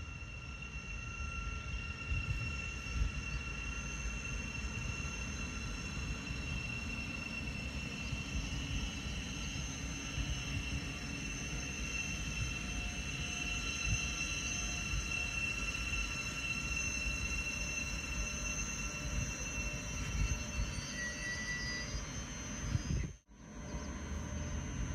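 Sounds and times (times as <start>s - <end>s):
high-pitched whine: 0.0s - 24.9s
train rumble: 0.0s - 24.9s.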